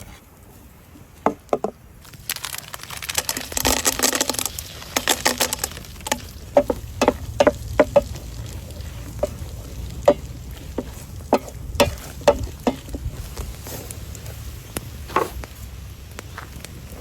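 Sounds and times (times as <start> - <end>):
utensil scraping a pan: 3.6 - 14.4
utensils knocking on a pan: 5.0 - 13.2.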